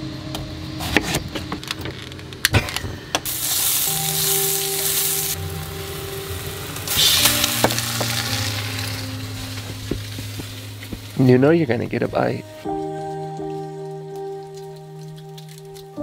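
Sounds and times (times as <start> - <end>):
slices sizzling in frying pan: 3.3 - 16.0.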